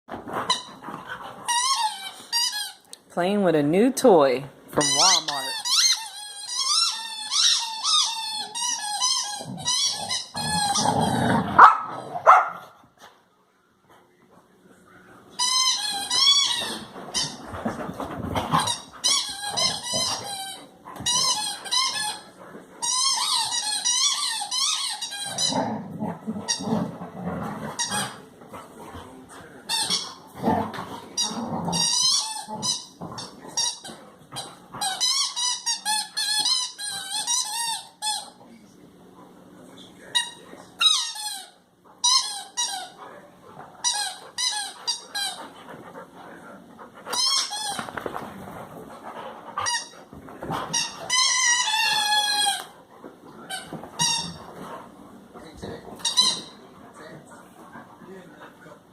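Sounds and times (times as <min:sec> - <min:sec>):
dog toy squeaking: 0:01.5 - 0:02.8, 0:04.8 - 0:10.9, 0:15.4 - 0:17.4, 0:18.6 - 0:22.2, 0:22.8 - 0:25.5, 0:29.7 - 0:30.2, 0:31.2 - 0:33.0, 0:33.6 - 0:38.4, 0:40.2 - 0:43.0, 0:43.8 - 0:45.4, 0:47.1 - 0:47.9, 0:49.6 - 0:50.0, 0:50.7 - 0:52.8, 0:53.5 - 0:54.5, 0:56.0 - 0:56.6.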